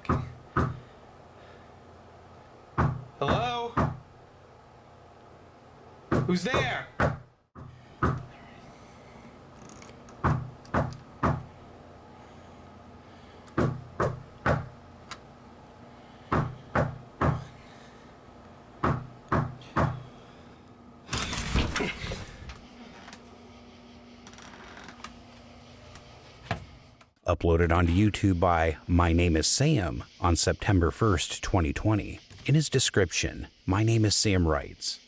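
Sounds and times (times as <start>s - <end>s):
knocking on a door: 0.1s - 0.8s, 2.8s - 4.0s, 6.1s - 8.2s, 10.2s - 11.5s.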